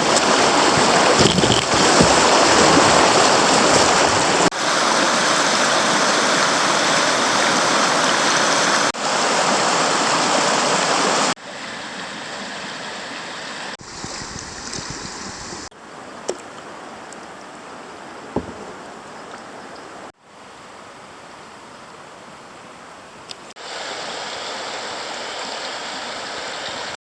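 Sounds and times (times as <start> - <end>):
creek water flowing: 0.0 - 27.0.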